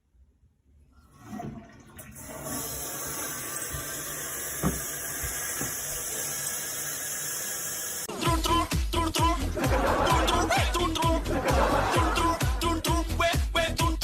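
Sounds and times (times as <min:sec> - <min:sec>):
water rushing: 0:01.1 - 0:08.0
small knock: 0:04.6 - 0:04.9.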